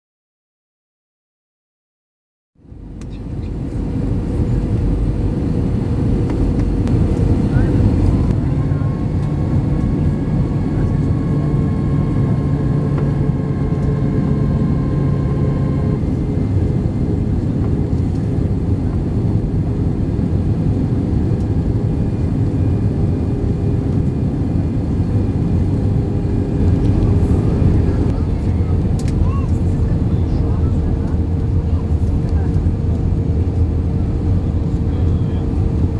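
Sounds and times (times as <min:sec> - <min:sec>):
airplane engine rumble: 0:02.6 - 0:35.9
steady hums: 0:02.7 - 0:20.3, 0:21.3 - 0:35.9.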